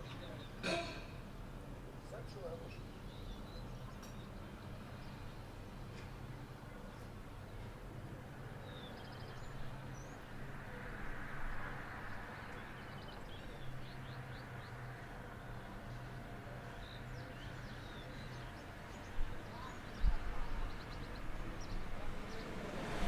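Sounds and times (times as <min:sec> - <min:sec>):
outdoor background noise: 0:00.0 - 0:23.0
small birds chirping: 0:02.0 - 0:07.7, 0:08.5 - 0:10.3, 0:12.4 - 0:23.0.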